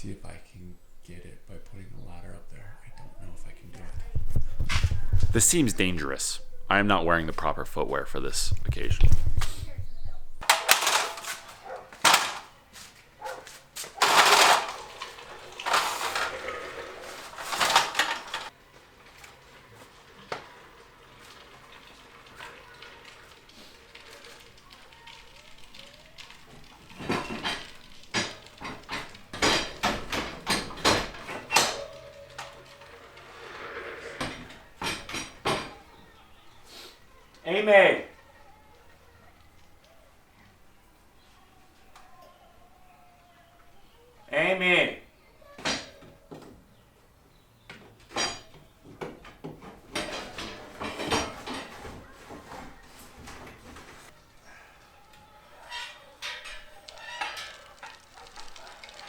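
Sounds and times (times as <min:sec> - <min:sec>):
hard objects clanking: 0:00.8 - 0:18.6, 0:21.7 - 0:36.0, 0:47.8 - 0:54.2, 0:55.6 - 0:59.0.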